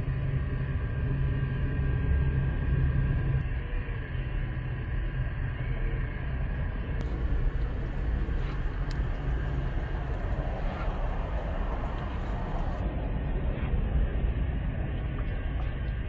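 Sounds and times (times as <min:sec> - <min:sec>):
car engine running: 0:07.0 - 0:12.8.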